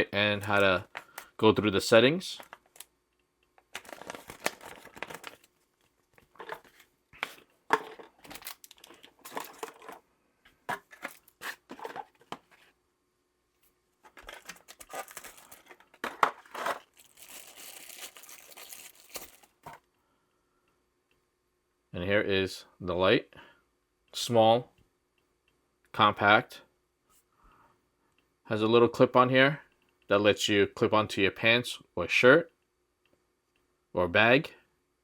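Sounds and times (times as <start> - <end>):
packaging crinkling and rustling: 3.6 - 10.0, 14.0 - 19.8.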